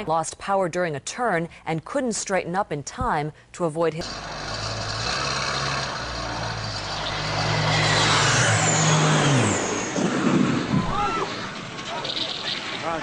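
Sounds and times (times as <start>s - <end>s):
aircraft engine droning past: 6.0s - 13.0s.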